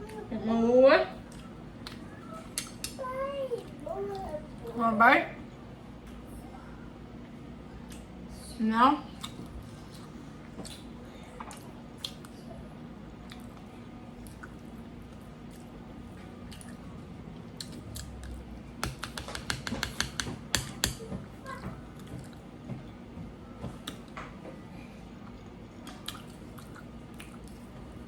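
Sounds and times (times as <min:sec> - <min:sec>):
faint steady hum: 0:00.0 - 0:28.0
chewing with mouth clicks: 0:09.2 - 0:12.5, 0:13.2 - 0:15.8, 0:16.5 - 0:18.4, 0:23.8 - 0:24.2, 0:25.2 - 0:27.8
rapid mouth clicks and smacks: 0:25.9 - 0:27.6.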